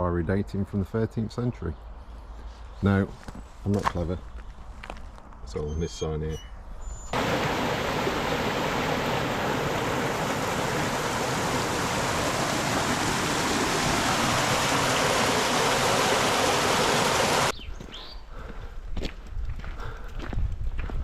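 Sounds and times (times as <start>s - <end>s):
stream water rushing: 7.2s - 17.5s.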